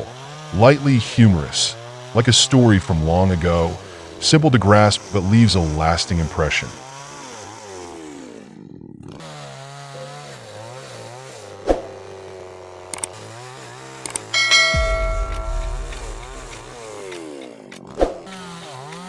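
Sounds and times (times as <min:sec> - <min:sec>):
sharp click: 0:14.1 - 0:17.3.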